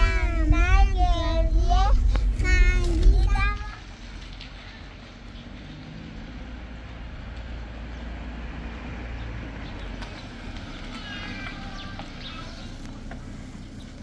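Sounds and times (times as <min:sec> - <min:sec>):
car engine running at low speed: 0:00.0 - 0:14.0.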